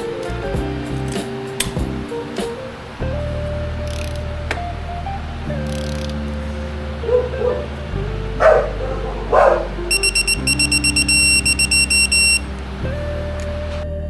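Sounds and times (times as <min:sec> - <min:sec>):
background music: 0:00.0 - 0:14.0
dog barking: 0:08.4 - 0:09.7
rapid high electronic beeping: 0:09.9 - 0:12.5.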